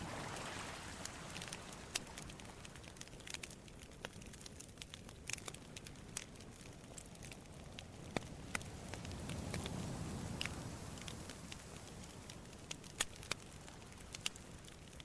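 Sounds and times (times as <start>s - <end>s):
surf rushing: 0.0s - 2.1s
campfire crackling and popping: 0.1s - 15.0s.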